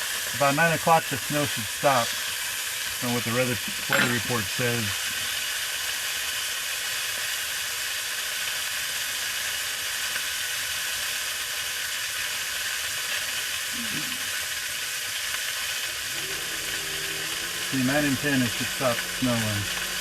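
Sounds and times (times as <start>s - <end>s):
sausages sizzling in a pan: 0.0s - 20.0s.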